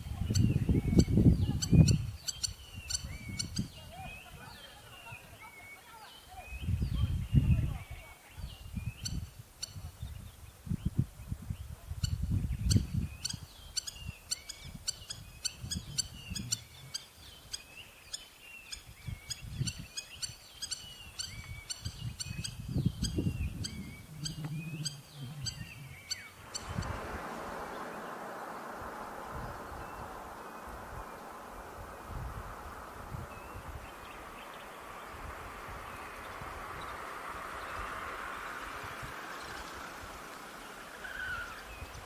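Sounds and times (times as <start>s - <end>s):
bird chirping: 0.0s - 28.8s
low uneven rumble: 22.6s - 42.0s.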